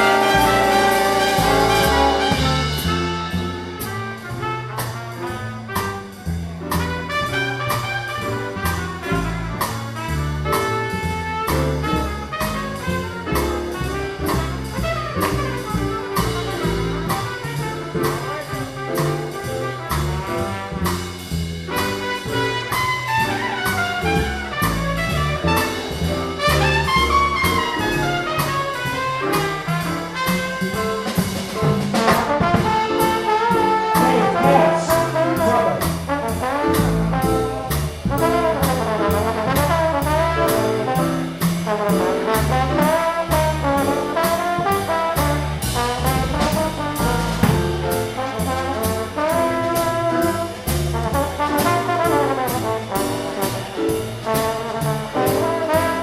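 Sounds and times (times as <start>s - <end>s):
stepping bass line: 0.0s - 4.0s, 33.7s - 50.0s
big band swing jazz: 0.0s - 56.0s
trumpets and trombones: 0.0s - 56.0s.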